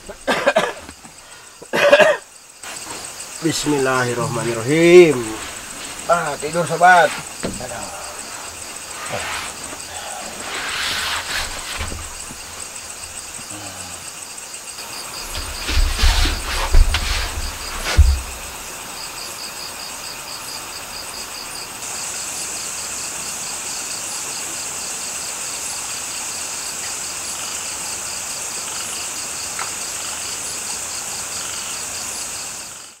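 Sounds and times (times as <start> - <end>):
continuous high insect buzz: 0.0 - 33.0
crickets chirping: 0.0 - 33.0
knocks and thumps of movement: 2.6 - 13.5, 15.0 - 18.6.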